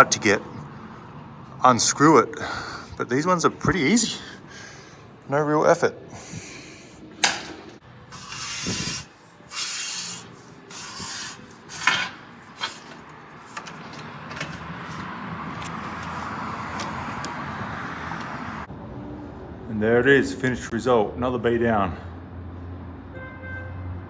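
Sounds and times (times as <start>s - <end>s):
hose fittings scraping: 7.2s - 17.8s.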